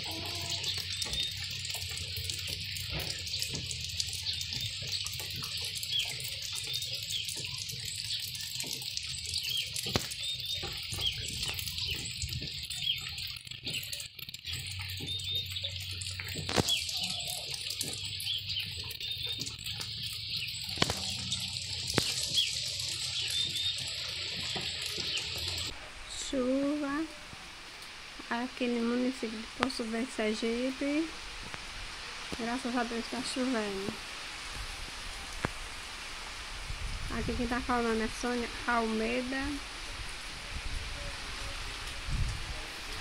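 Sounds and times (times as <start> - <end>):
birds chirping: 0.0 - 27.1
steady rain: 0.0 - 43.0.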